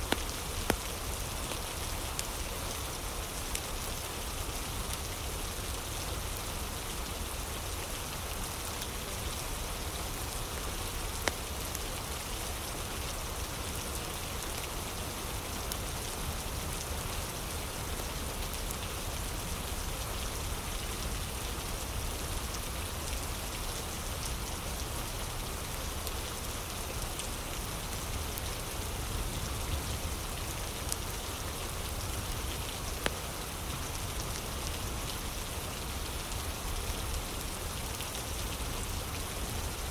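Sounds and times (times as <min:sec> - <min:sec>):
fire crackling and popping: 0:00.0 - 0:02.3, 0:10.5 - 0:11.9
rain hiss: 0:00.0 - 0:39.9.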